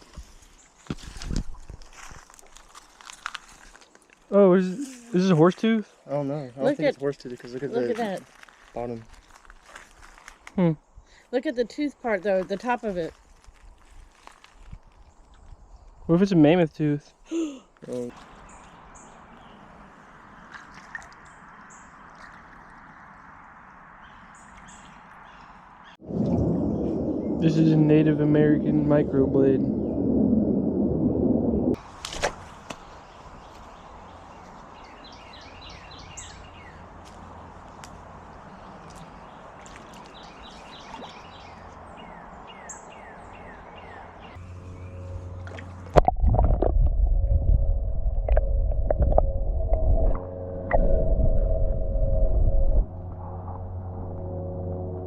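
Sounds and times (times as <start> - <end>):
faint outdoor background noise: 0.0 - 26.1, 31.8 - 46.0
muffled low rumble with hum: 26.1 - 31.8, 44.4 - 55.0
bird chirping: 32.8 - 36.8, 38.4 - 45.4
bird chirps: 34.8 - 36.8.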